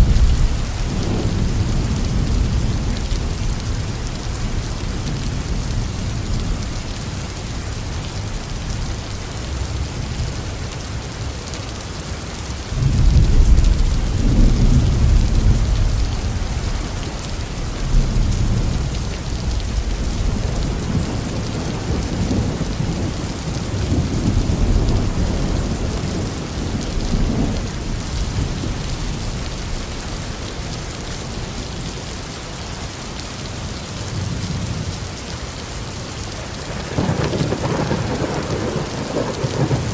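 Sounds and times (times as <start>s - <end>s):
thunder rumbling: 0.0s - 6.8s, 12.7s - 30.4s, 36.5s - 39.9s
heavy rain on a roof: 0.0s - 39.9s.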